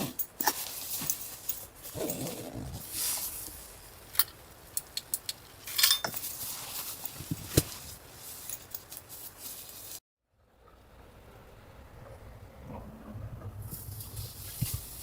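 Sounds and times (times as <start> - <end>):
clinks and knocks of hard objects: 4.1 - 9.1.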